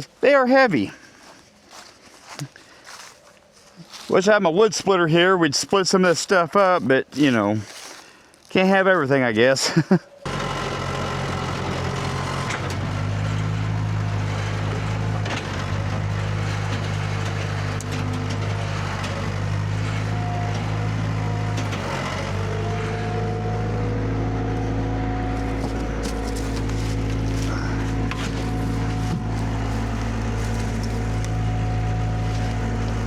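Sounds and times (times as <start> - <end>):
skid steer engine running: 10.2 - 33.0.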